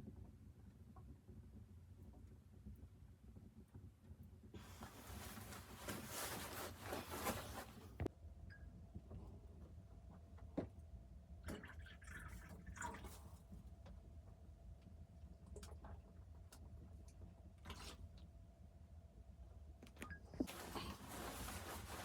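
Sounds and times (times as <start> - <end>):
handling noises: 4.6 - 8.1, 20.4 - 22.0
liquid pouring: 11.5 - 13.4.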